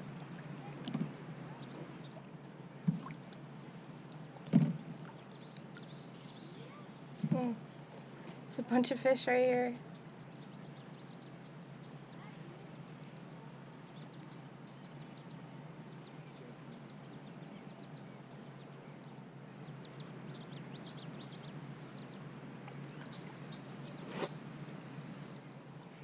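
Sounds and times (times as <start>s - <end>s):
steady low hiss: 0.0s - 26.0s
faint high ticks: 3.0s - 3.4s, 5.1s - 5.9s.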